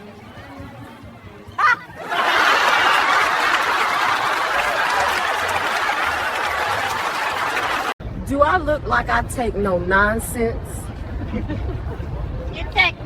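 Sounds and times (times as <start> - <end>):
crowd laughing and clapping: 1.6 - 8.0.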